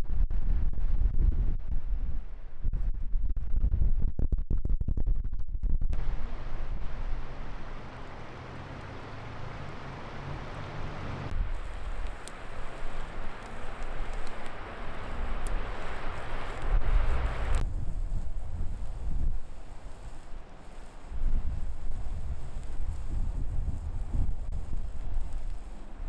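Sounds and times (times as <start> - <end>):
wind buffeting microphone: 6.0 - 26.0.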